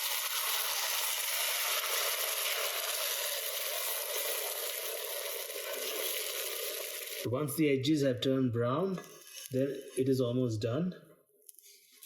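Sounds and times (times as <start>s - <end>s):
omelette sizzling in a pan: 0.0s - 7.3s.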